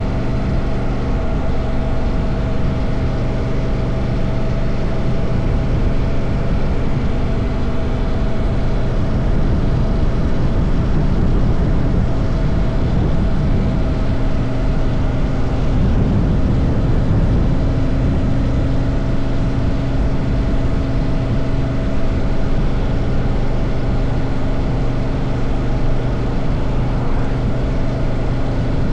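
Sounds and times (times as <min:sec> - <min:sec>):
motorcycle engine cruising: 0:00.0 - 0:28.9
wind and road noise: 0:00.0 - 0:28.9.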